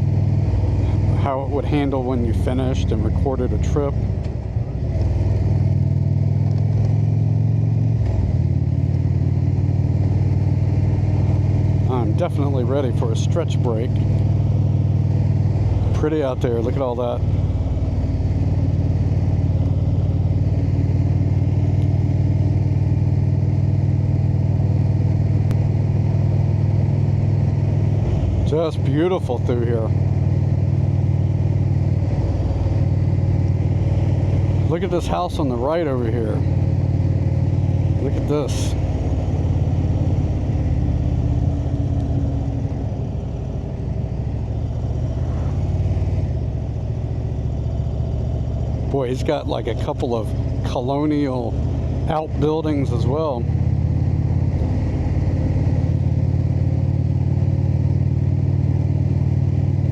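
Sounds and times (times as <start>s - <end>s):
motorcycle engine cruising: 0.0s - 59.9s
road and wind noise: 0.0s - 59.9s.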